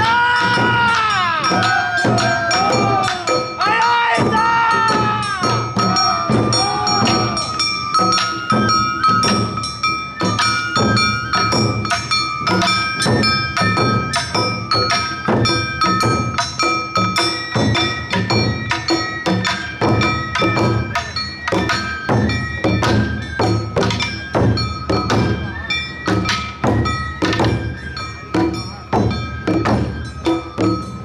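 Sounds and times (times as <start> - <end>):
taiko drums beating: 0.0 - 31.0
hand gong ringing: 5.0 - 9.4.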